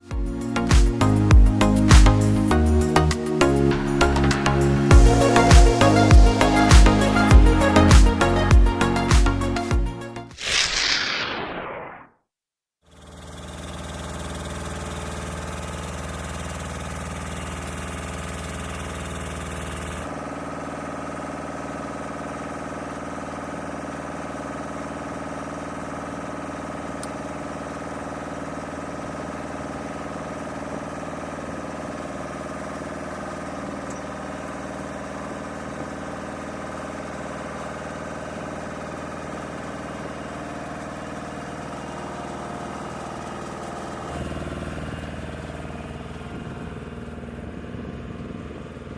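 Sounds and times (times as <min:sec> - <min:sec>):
engine droning: 0:00.2 - 0:09.7.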